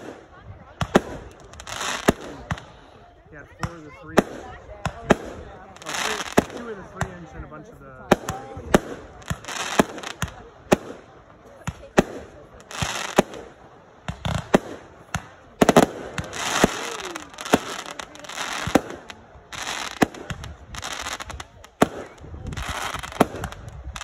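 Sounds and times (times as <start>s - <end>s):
fireworks crackling hiss: 0.0s - 7.4s, 8.1s - 24.0s
fireworks bangs: 0.0s - 24.0s.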